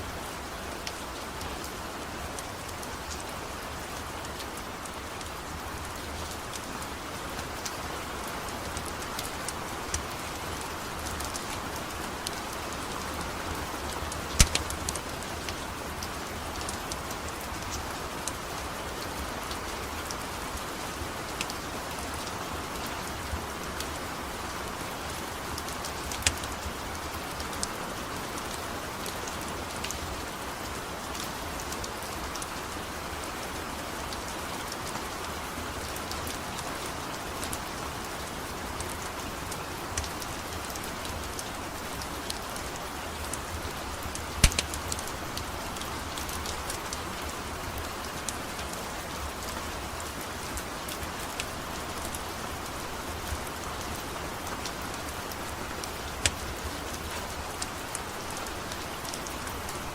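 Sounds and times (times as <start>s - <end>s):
steady rain falling: 0.0s - 59.9s
sharp clicks: 14.3s - 14.8s, 44.4s - 44.8s.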